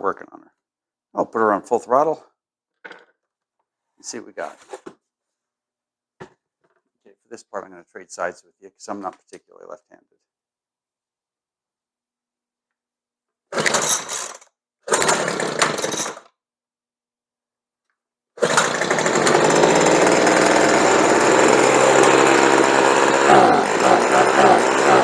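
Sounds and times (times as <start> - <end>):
leaf blower engine running: 14.9 - 15.7, 18.4 - 25.0.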